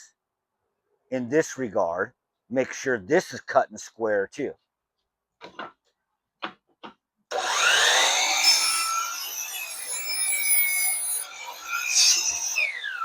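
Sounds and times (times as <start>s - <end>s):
miter saw motor whine: 7.3s - 13.0s
saw blade cutting wood: 7.3s - 13.0s.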